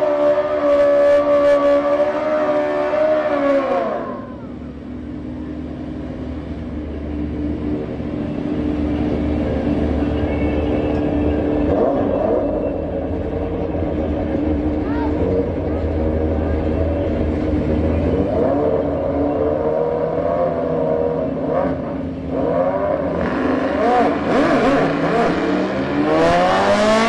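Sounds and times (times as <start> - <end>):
car engine idling: 4.2 - 19.8.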